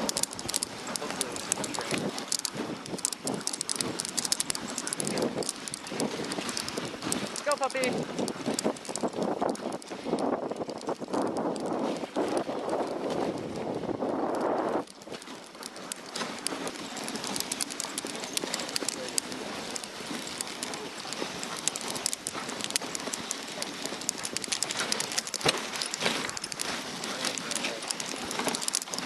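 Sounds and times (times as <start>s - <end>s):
dog paws pattering on snow: 0.0s - 29.0s
small clicks and crunches: 0.0s - 29.0s
sled runners hissing on snow: 0.1s - 8.7s.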